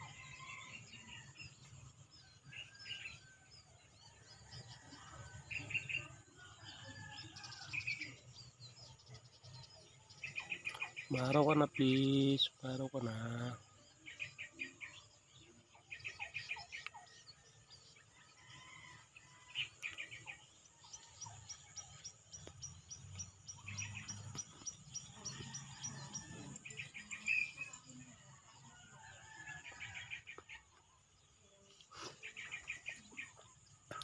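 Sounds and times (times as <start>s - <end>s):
birds chattering trills: 4.1s - 34.0s.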